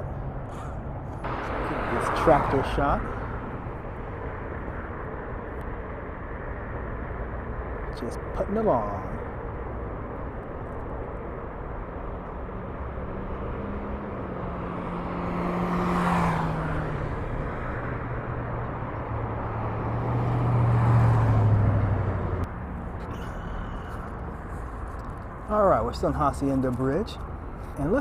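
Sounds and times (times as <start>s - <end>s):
steady traffic hum: 0.0s - 28.0s
vehicles passing by: 0.0s - 28.0s.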